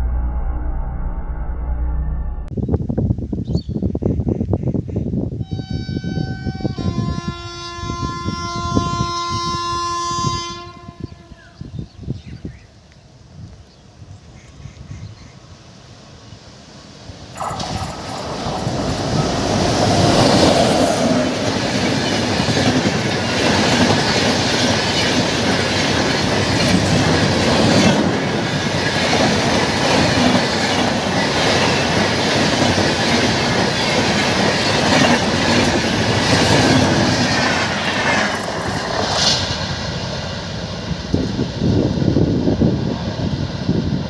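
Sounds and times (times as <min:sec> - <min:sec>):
train crossing iron bridge: 0:05.4 - 0:11.8, 0:15.3 - 0:44.0.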